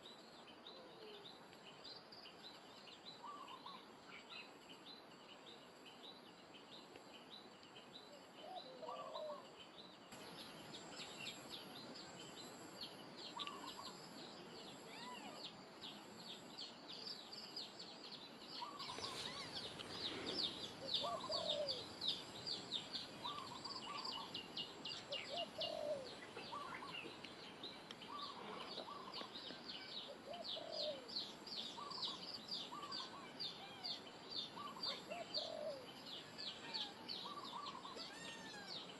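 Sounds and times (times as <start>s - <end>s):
background hiss: 0.0s - 38.9s
small birds chirping: 0.0s - 38.9s
low bird calls: 3.1s - 4.5s, 8.4s - 9.6s, 13.2s - 14.0s, 18.4s - 38.9s.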